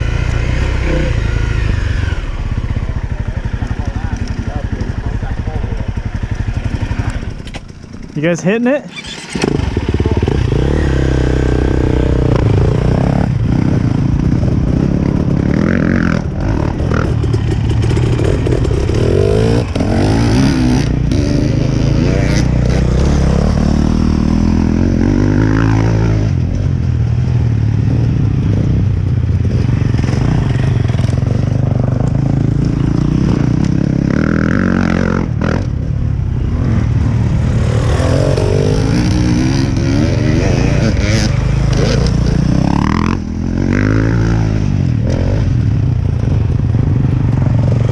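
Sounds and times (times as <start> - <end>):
dirt bike engine revving: 0.0 - 47.9
clatter: 13.6 - 19.9.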